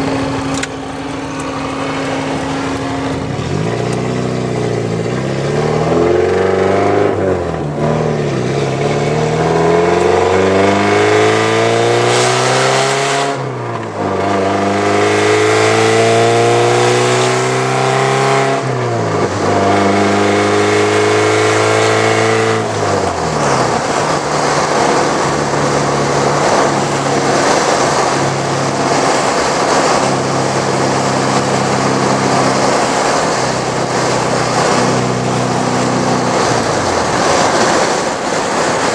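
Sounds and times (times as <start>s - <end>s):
car engine accelerating: 0.0s - 38.9s.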